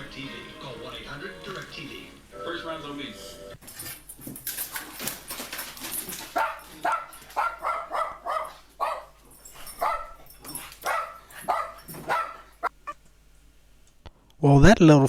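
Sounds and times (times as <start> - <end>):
small dog yapping: 6.0 - 13.0.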